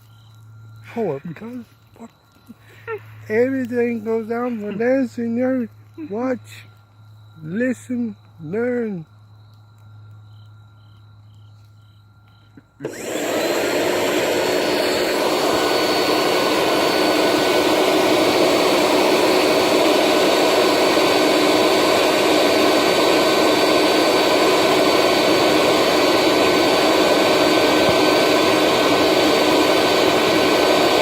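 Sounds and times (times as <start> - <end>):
handheld blower whining: 12.8 - 31.0.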